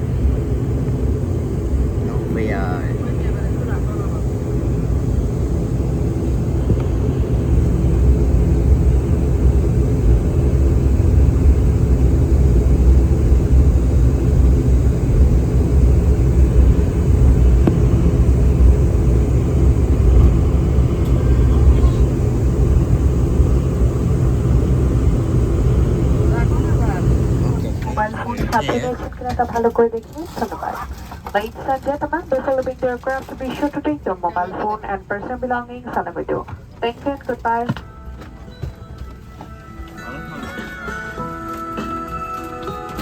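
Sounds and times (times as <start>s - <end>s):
airliner cabin engine rumble: 0.0s - 39.2s
faint hum: 0.0s - 40.7s.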